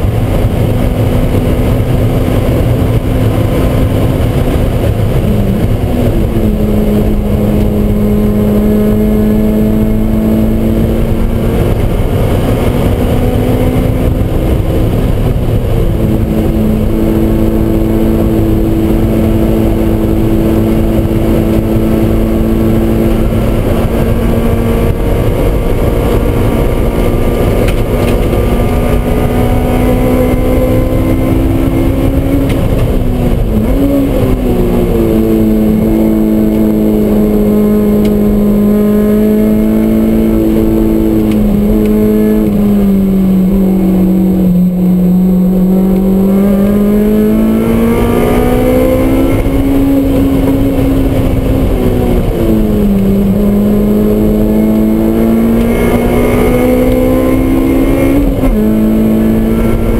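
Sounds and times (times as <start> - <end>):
car engine at high revs: 0.0 - 59.9.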